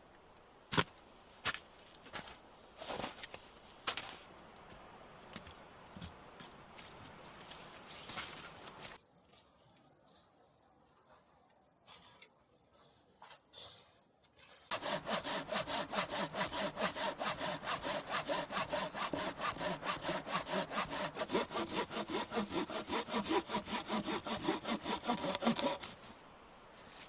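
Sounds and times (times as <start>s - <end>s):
hand saw cutting wood: 14.7s - 26.1s.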